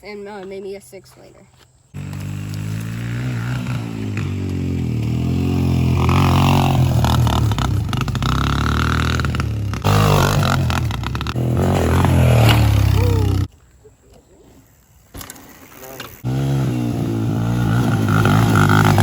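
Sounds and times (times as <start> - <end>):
dirt bike engine revving: 1.9 - 13.5, 15.9 - 19.0.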